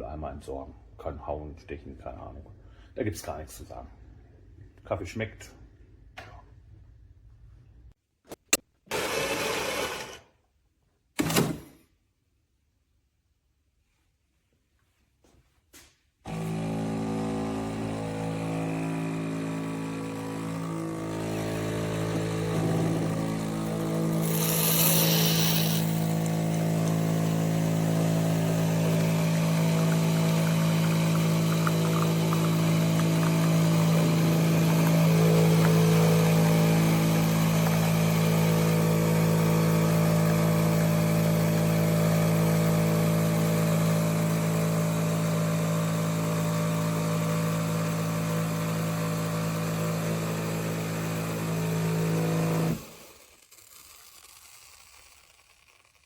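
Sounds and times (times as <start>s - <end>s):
machine humming: 16.3s - 52.9s.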